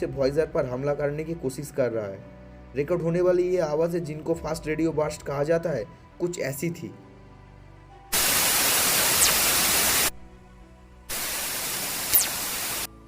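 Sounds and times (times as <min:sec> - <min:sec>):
bursts of loud static hiss: 0:08.1 - 0:10.2, 0:11.1 - 0:13.0.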